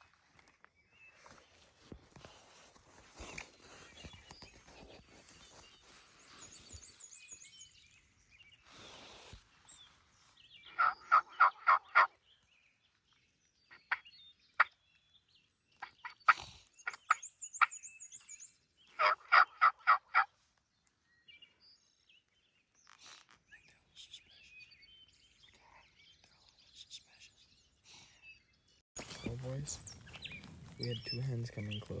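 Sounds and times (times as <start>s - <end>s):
turkey yelping: 10.7s - 12.1s, 19.0s - 20.3s.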